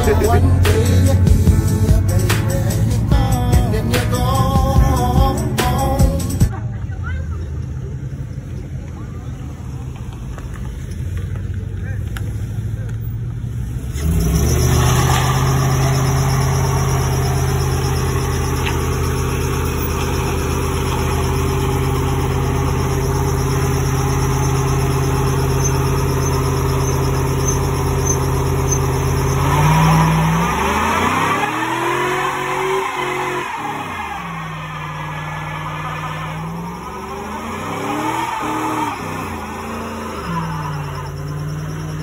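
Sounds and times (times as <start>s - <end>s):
engine at high revs: 13.6s - 42.0s.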